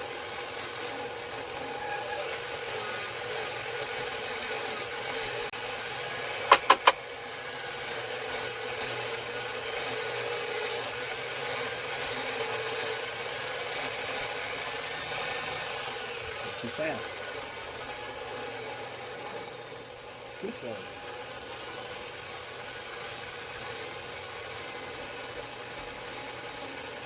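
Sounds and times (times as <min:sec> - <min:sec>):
power tool motor running: 0:00.0 - 0:27.0
grinding hiss: 0:06.4 - 0:07.3
sharp clicks: 0:06.5 - 0:07.0.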